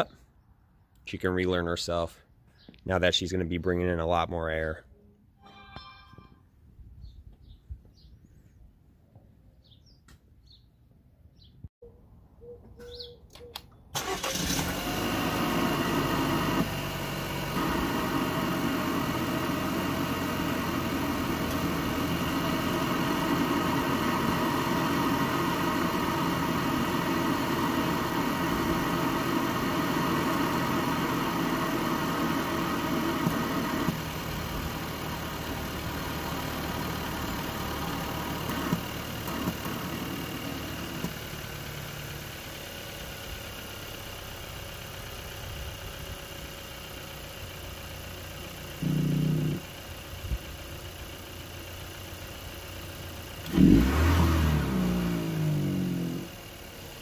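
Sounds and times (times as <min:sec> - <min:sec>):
car engine starting and idling: 0:13.3 - 0:57.0.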